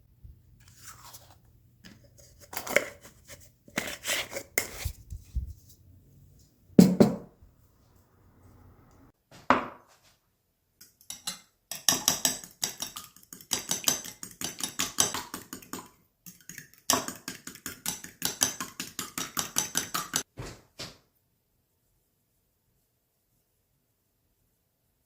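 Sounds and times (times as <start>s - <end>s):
knife chopping on cutting board: 6.8s - 7.3s.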